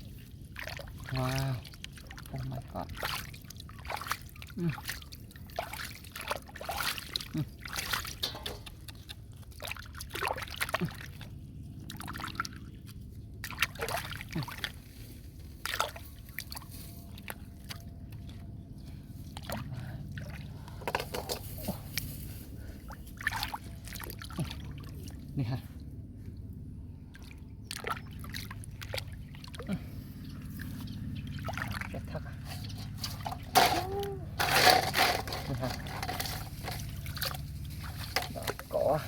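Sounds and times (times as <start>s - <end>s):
water sloshing and splashing: 0.0s - 39.0s.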